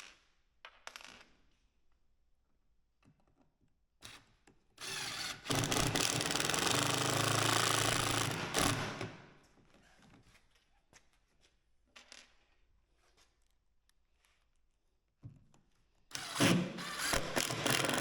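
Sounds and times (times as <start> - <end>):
impact driver driving screw into wood: 4.1 - 9.2, 16.1 - 18.0.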